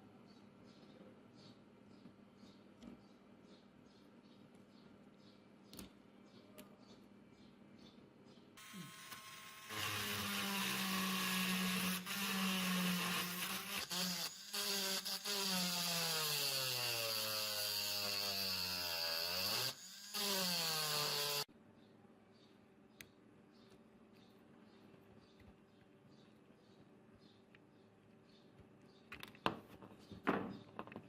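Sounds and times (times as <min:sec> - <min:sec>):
electric power tool motor running: 0:08.6 - 0:21.5.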